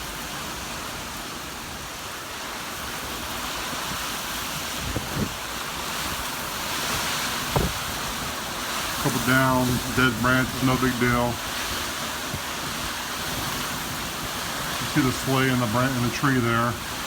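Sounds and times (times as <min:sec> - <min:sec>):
driving rain: 0:00.0 - 0:17.0
hurricane wind: 0:00.0 - 0:17.0.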